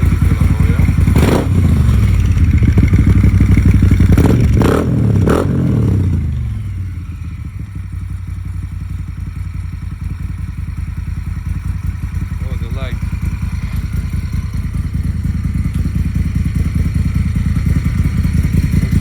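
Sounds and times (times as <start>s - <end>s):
motorcycle engine revving and idling: 0.0s - 19.0s.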